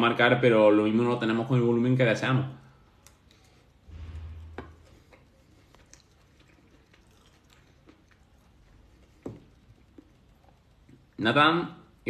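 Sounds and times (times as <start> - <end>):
person chewing: 2.8 - 11.2
low hum: 3.5 - 11.2.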